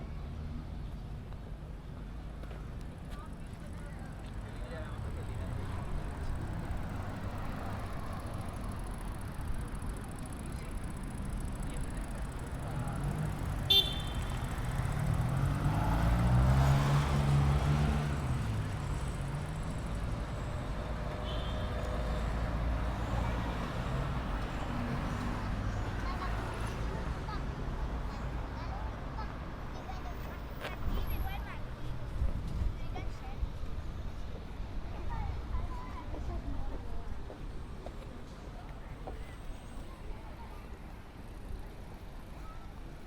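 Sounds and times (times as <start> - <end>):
street traffic rumbling: 0.0 - 43.0
vehicle engine passing: 14.4 - 19.8.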